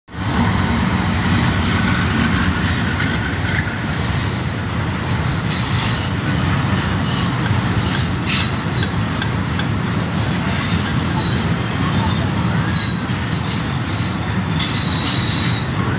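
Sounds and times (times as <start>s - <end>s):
freight train wheels rumbling on rail: 0.1s - 15.9s
high metallic wheel squeals: 3.8s - 9.4s, 10.0s - 15.9s.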